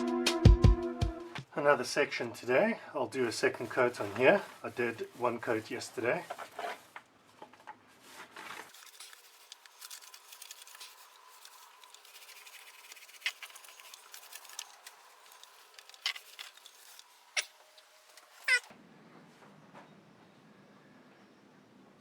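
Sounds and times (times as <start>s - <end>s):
paintbrush strokes: 8.0s - 18.6s
short squeak: 18.3s - 18.7s.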